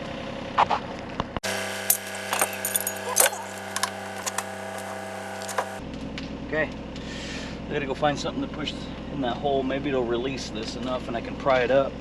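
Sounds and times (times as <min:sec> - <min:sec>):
steady low hum: 0:01.4 - 0:12.0
hand tools clinking on metal: 0:01.9 - 0:04.5.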